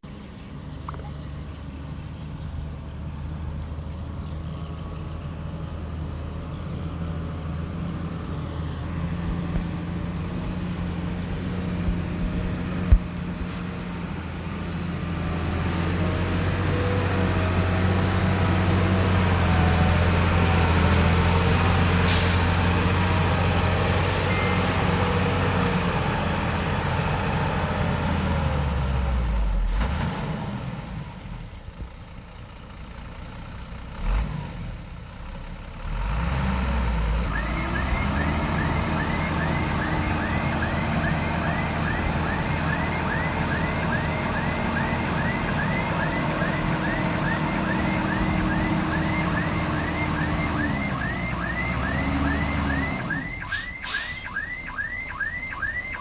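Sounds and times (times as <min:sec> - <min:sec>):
heavy diesel machinery engine: 0:00.0 - 0:56.0
sharp hiss of air: 0:22.1 - 0:22.7, 0:53.5 - 0:54.4
short chirps: 0:53.4 - 0:54.4.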